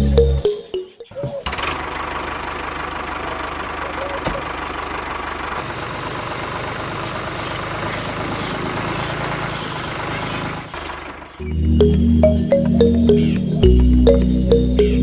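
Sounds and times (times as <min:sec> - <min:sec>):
music: 0:00.0 - 0:01.1, 0:11.4 - 0:15.0.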